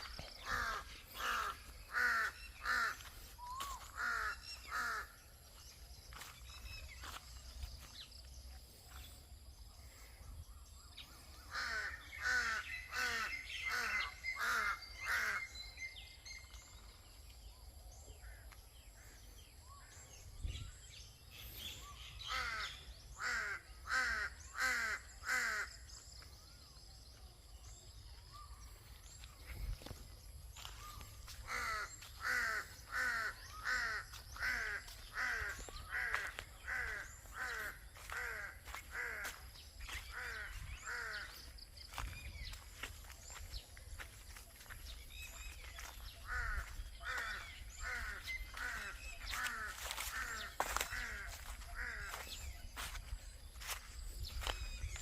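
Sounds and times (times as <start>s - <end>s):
bird calling: 0.0s - 8.1s, 9.0s - 17.0s, 27.6s - 55.0s.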